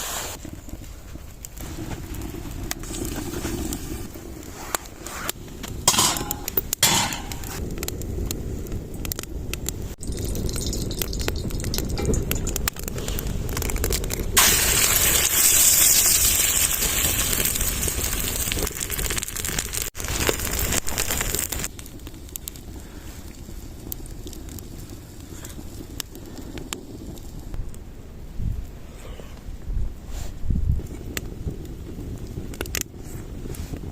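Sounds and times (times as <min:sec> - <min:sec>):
stove fire crackling: 0:00.0 - 0:27.8, 0:30.0 - 0:33.9
eggs sizzling in a frying pan: 0:09.9 - 0:27.6.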